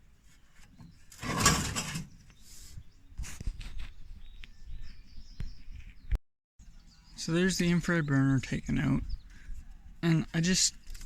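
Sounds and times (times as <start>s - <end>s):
metal scraping rasp: 0.7s - 2.2s.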